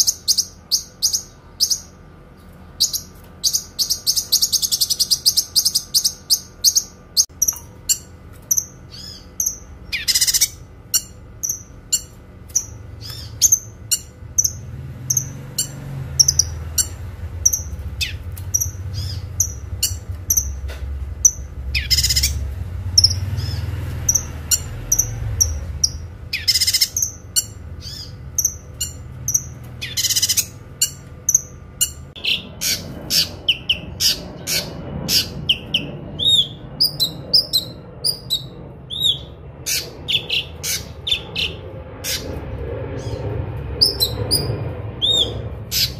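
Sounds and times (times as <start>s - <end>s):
bird chirping: 0.0s - 45.9s
low rumble: 12.7s - 45.9s.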